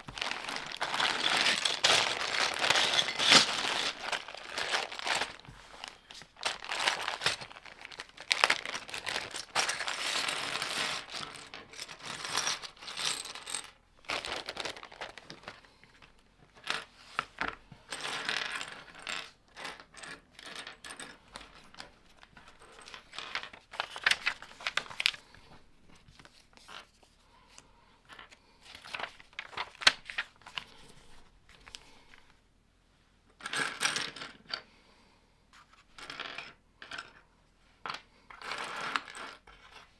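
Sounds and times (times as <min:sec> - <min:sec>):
plastic bricks clattering and clicking: 0:00.0 - 0:15.6.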